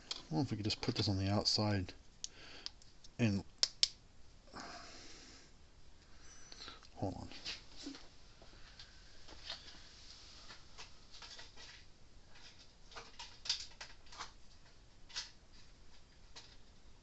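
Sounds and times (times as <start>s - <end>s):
small parts clicking and tapping: 12.4s - 16.6s.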